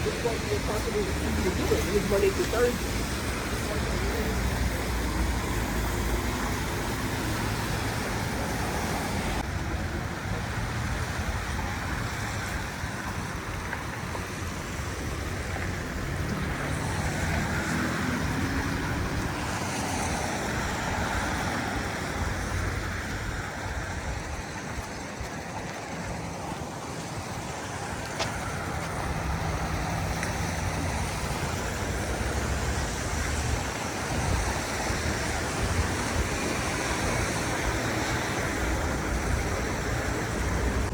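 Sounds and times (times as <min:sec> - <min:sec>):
street traffic: 0:00.0 - 0:40.9
engine revving pulling away: 0:16.0 - 0:21.8.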